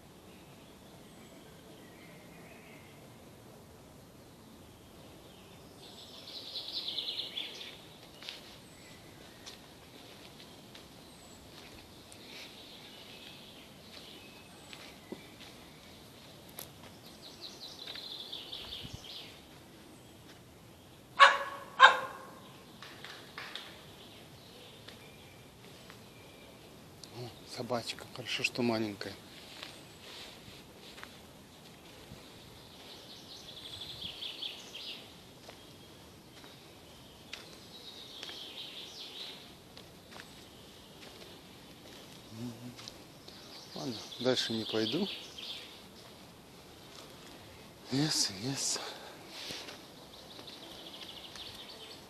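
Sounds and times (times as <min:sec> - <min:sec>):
birds twittering: 0:04.3 - 0:52.0
small dog barking: 0:21.2 - 0:22.4
songbird trilling: 0:42.3 - 0:45.8.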